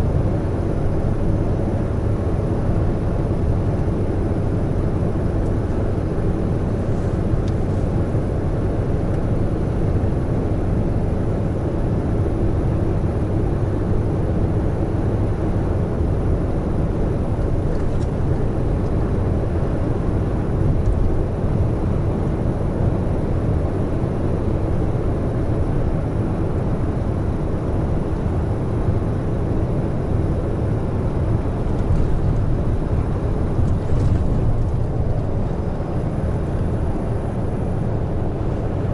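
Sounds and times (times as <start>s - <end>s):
road noise: 0.0s - 38.9s
truck engine drone: 0.0s - 38.9s.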